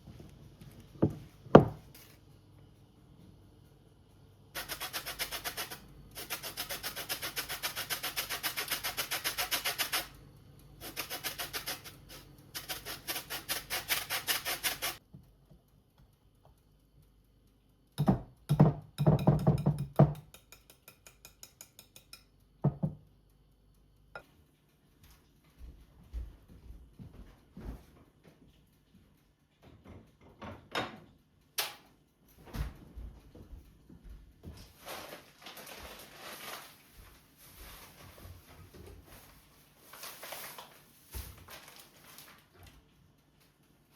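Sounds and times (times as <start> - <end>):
scraping strokes: 4.6 - 10.1, 10.8 - 15.0.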